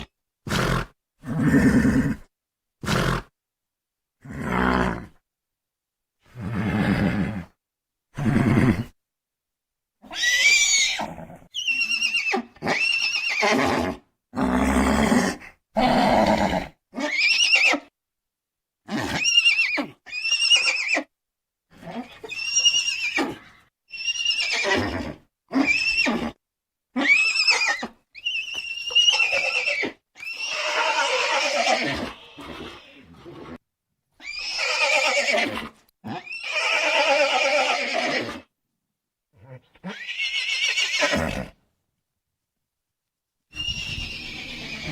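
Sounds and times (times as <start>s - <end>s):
horse whinnies: 8.2s - 9.0s, 10.0s - 17.9s, 18.9s - 21.1s, 21.7s - 26.4s, 27.0s - 33.6s, 34.2s - 38.5s, 39.4s - 41.6s, 43.5s - 44.9s.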